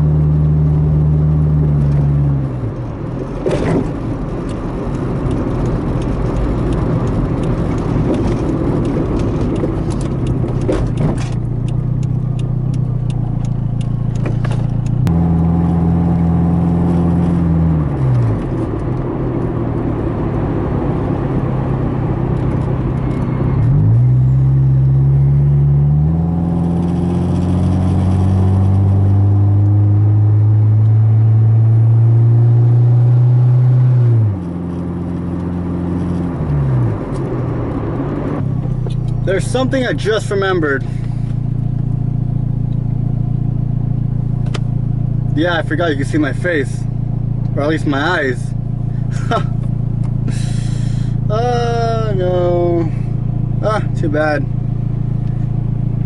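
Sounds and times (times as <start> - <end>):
car engine from inside cabin: 0.0 - 56.0
road noise: 0.0 - 56.0
sharp clicks and knocks: 3.1 - 15.1, 44.4 - 44.7.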